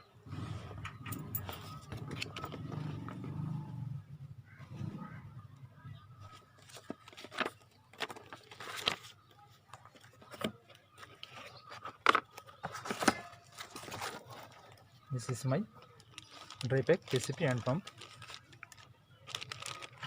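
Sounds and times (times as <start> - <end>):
cardboard box being rummaged: 6.6 - 9.2, 9.9 - 14.7, 16.0 - 20.0.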